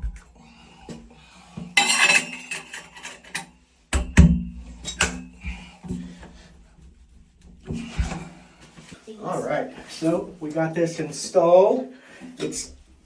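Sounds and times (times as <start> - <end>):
metal cover clinking and knocking: 1.8 - 6.1.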